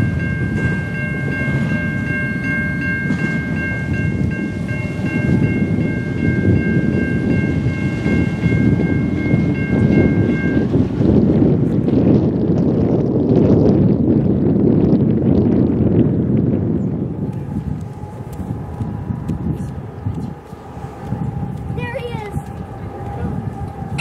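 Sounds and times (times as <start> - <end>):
repeated high ringing tone: 0.0 - 10.8
train rumbling past: 0.0 - 24.0.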